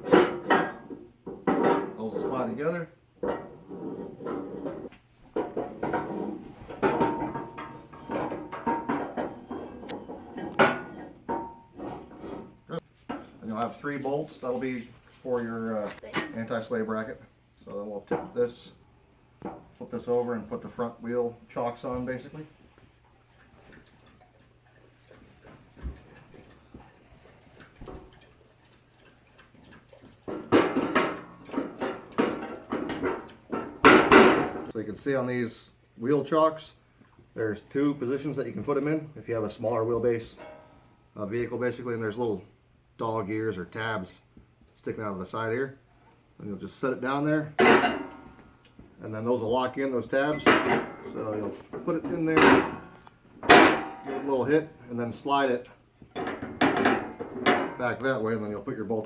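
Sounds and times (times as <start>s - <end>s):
metal clanks and rattles: 0.0s - 2.5s, 3.2s - 14.9s, 25.8s - 34.8s, 40.3s - 40.8s, 47.6s - 48.4s, 50.2s - 54.5s, 56.1s - 58.2s
steel parts clanking and scraping: 3.2s - 14.9s, 40.3s - 40.8s
faint ticks and knocks: 22.6s - 34.8s.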